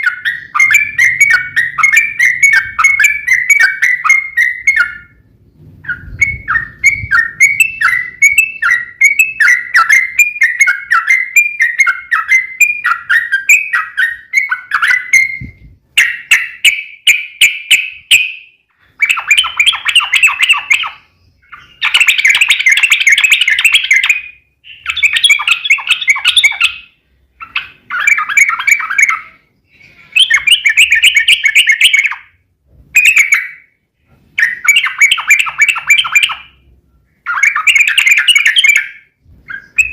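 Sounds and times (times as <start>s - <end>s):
bird whistled notes: 0.0s - 5.2s, 5.8s - 32.3s, 33.0s - 33.7s, 34.4s - 39.9s
bird chattering trills: 5.8s - 32.4s, 34.4s - 36.6s, 37.2s - 39.9s.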